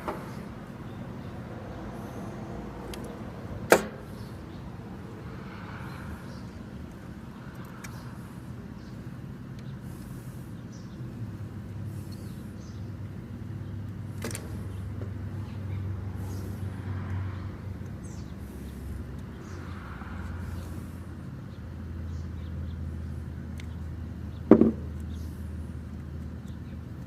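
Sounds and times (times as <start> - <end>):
low mechanical hum: 0.0 - 27.0.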